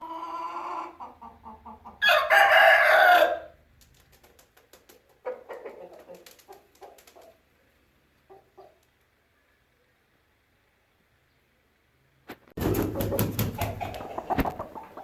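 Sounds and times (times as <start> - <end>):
rooster clucking: 0.0 - 3.5, 5.1 - 7.4, 12.6 - 15.0
rooster crowing: 2.0 - 3.6.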